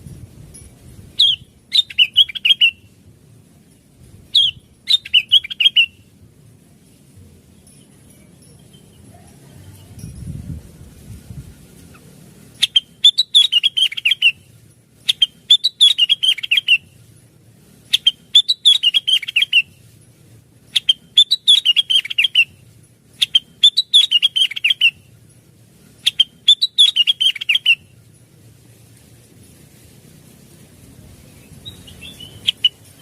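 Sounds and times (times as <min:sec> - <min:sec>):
bird singing chipping notes: 0:01.2 - 0:02.9, 0:04.3 - 0:06.0, 0:11.6 - 0:14.5, 0:15.1 - 0:17.0, 0:17.9 - 0:19.9, 0:20.7 - 0:22.6, 0:23.2 - 0:25.1, 0:26.0 - 0:28.0, 0:31.2 - 0:33.0.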